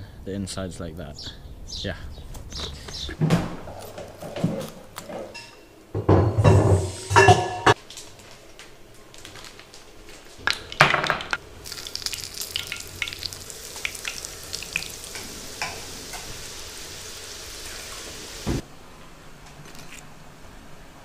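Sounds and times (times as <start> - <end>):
food frying in hot oil: 11.1 - 18.6.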